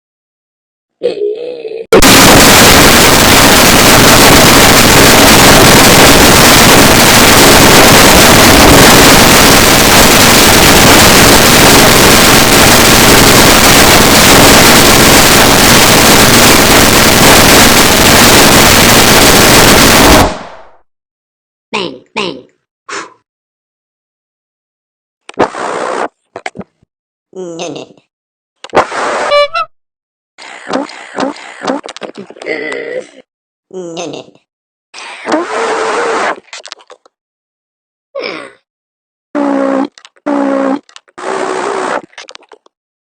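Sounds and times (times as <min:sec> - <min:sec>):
harsh distorted noise: 0:02.0 - 0:20.8, 0:25.4 - 0:26.2, 0:28.8 - 0:29.6, 0:35.3 - 0:36.5, 0:41.0 - 0:42.4.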